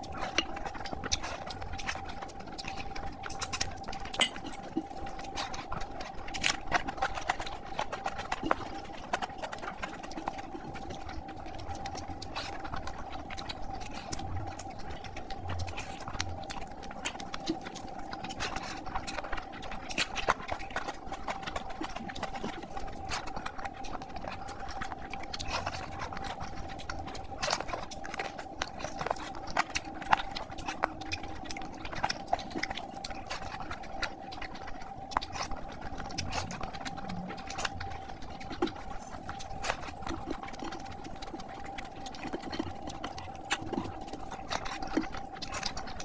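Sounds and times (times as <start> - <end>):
faint steady hum: 0.0 - 46.0
wet chewing and lip smacking: 0.0 - 46.0.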